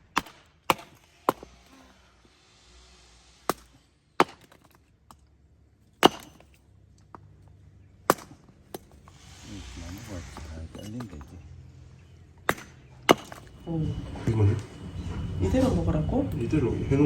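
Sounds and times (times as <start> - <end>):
axe chopping firewood: 0.0 - 1.8, 3.4 - 5.2, 6.0 - 7.2, 8.0 - 9.2, 12.4 - 13.5.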